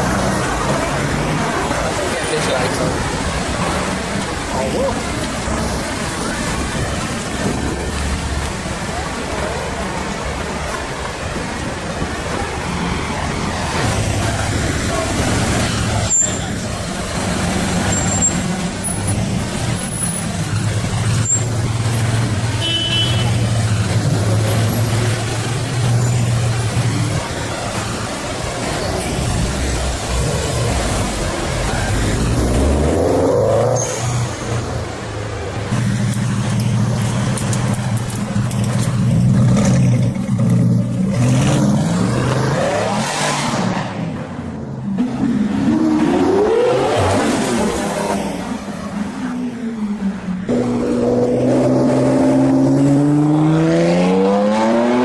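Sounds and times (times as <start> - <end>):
road noise: 0.0 - 55.0
vehicle engines humming: 0.0 - 55.0.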